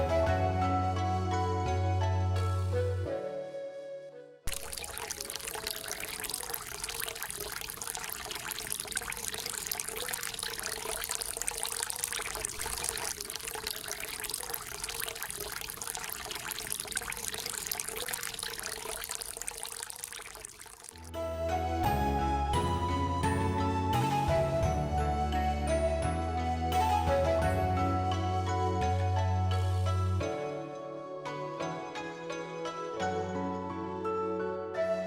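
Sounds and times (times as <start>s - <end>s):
water pouring and splashing: 4.5s - 21.2s.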